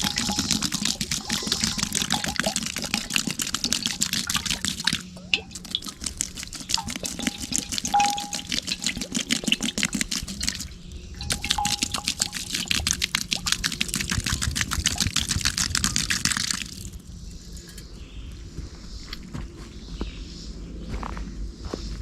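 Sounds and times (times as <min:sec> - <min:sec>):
water pouring and splashing: 0:00.0 - 0:17.1.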